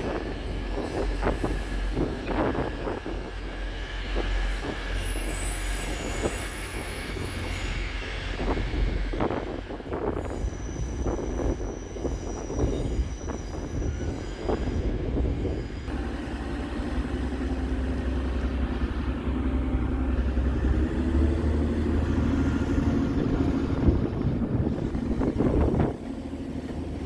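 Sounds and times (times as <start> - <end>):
diesel train engine drone: 0.0 - 27.0
high-pitched wheel squeal: 4.9 - 26.0.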